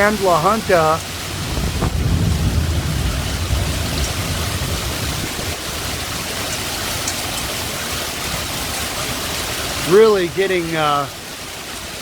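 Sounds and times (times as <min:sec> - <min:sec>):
heavy rain pouring: 0:00.0 - 0:12.0
low rumble: 0:01.1 - 0:05.6.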